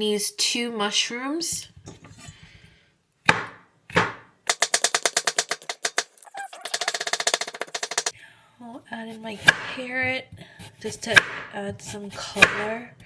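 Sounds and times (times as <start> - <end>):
knife chopping on cutting board: 10.6 - 12.8.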